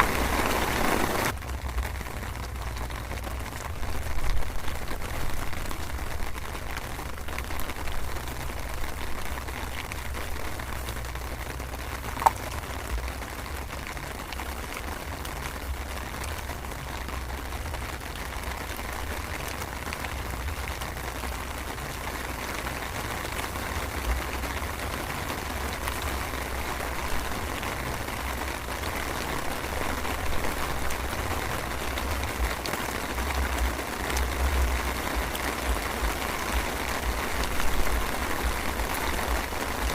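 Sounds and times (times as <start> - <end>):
low unsteady rumble: 0.0 - 23.0.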